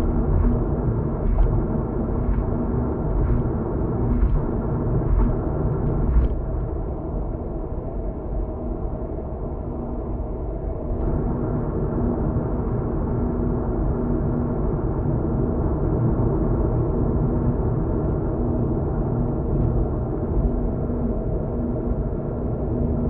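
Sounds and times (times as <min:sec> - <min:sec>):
car road and engine rumble: 0:00.0 - 0:07.4
constant hum: 0:00.0 - 0:23.0.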